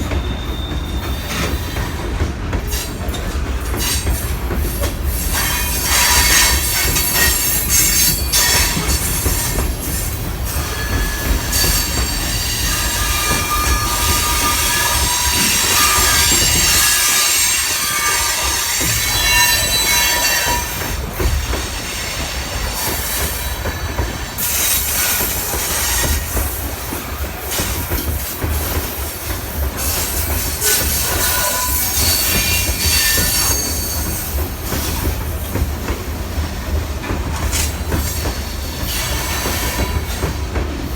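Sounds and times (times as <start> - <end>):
metallic wheel squeals: 10.6 - 21.0, 29.9 - 34.4.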